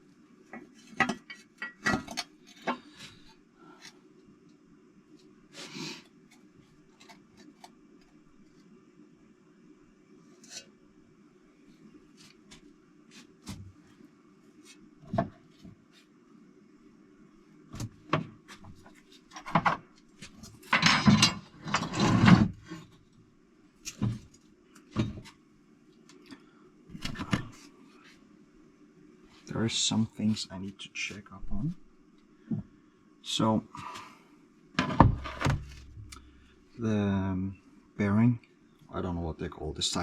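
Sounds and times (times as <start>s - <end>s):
steady low hum: 0.0s - 40.0s
engine parts and tools clinking: 20.7s - 22.3s.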